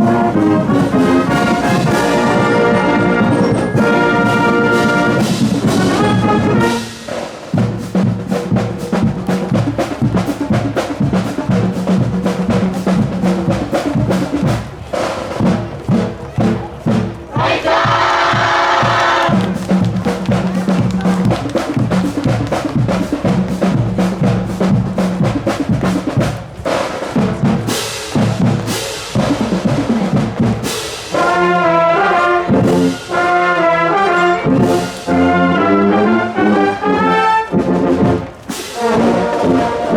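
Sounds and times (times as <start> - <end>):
brass section playing: 0.0 - 8.0, 17.4 - 39.9
rapid drum hits: 3.0 - 31.3.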